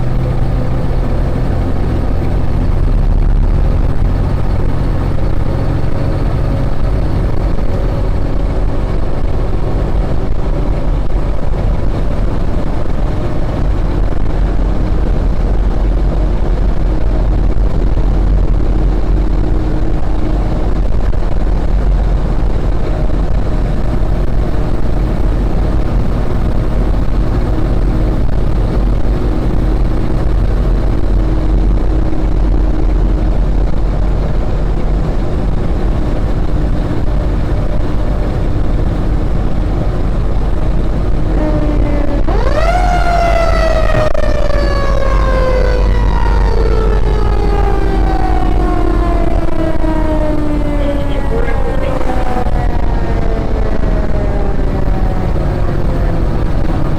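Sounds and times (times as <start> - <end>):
engine and road rumble: 0.0 - 56.9
faint hum: 41.0 - 56.4.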